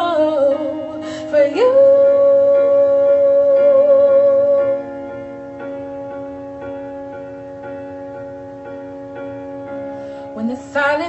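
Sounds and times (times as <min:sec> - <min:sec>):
person singing: 0:00.0 - 0:05.0
sustained chords: 0:00.0 - 0:11.0.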